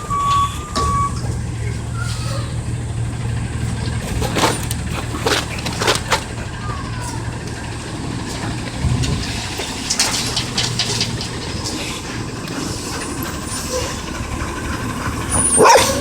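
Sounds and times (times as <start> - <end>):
garbage truck engine running: 0.0 - 16.0
refuse cracking and crushing: 3.2 - 12.7.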